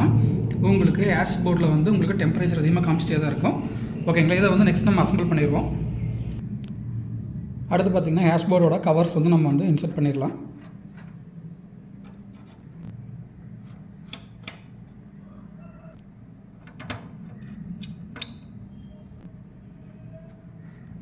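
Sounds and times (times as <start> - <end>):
steady low hum: 0.0 - 21.0
metal covers clicking and knocking: 16.6 - 18.4.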